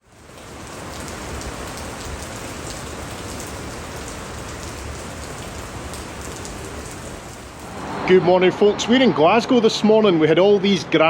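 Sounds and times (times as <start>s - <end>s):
rain pattering on hard surfaces: 0.0s - 7.8s.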